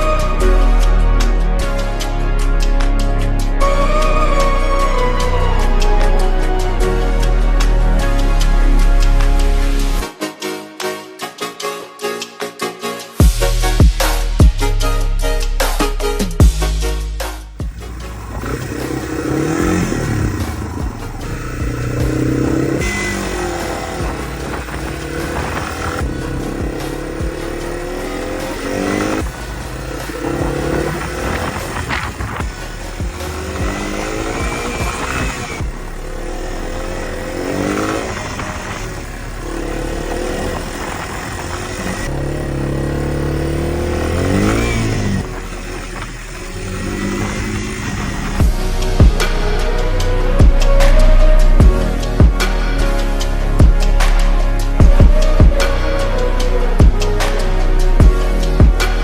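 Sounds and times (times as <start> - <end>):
motorcycle engine accelerating: 3.6 - 10.0, 17.6 - 59.0.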